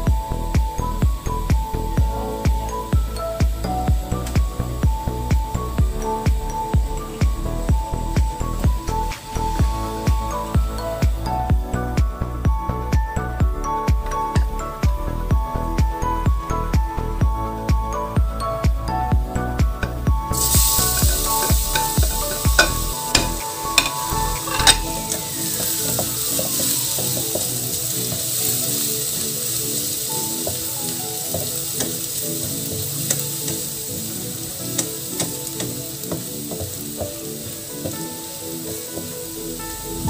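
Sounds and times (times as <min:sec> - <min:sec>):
garlic and onion sizzling in oil: 0:20.2 - 0:40.0
metal spatula scraping pan: 0:20.4 - 0:26.7.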